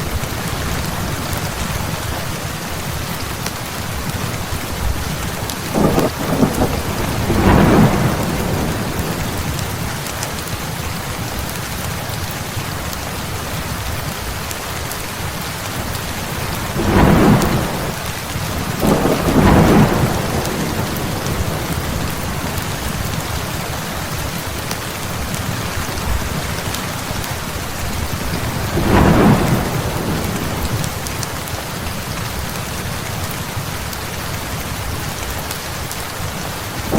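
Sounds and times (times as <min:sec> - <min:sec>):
heavy rain: 0:00.0 - 0:36.9
thunder rolling: 0:04.9 - 0:09.8, 0:16.6 - 0:23.4, 0:28.0 - 0:30.9.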